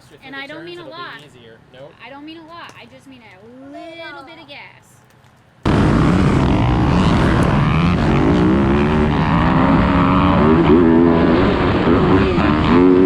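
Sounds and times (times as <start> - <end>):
dirt bike engine revving: 5.6 - 13.0.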